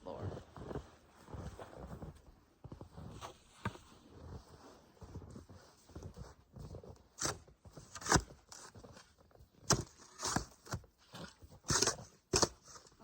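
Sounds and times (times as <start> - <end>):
footsteps crunching in snow: 0.0 - 12.8
snow shovel scraping snow: 7.2 - 9.1, 9.7 - 13.0.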